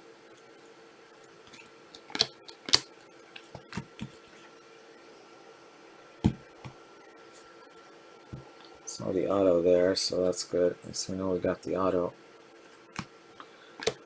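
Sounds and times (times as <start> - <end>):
cards rustling and tapping: 1.5 - 4.3, 12.9 - 14.0.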